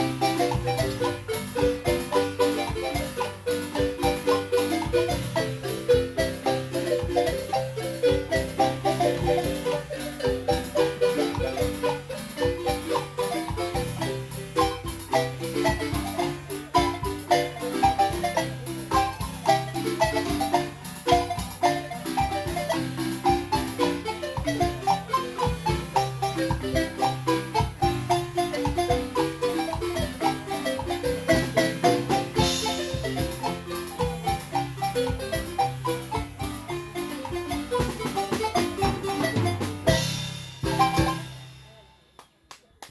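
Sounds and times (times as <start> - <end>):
marimba music: 0.0 - 42.1.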